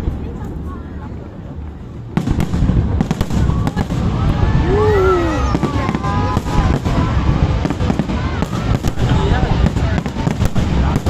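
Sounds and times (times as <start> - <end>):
low rumble: 0.0 - 11.0
fireworks cracks and booms: 2.1 - 11.0
person exclaiming: 4.6 - 5.8.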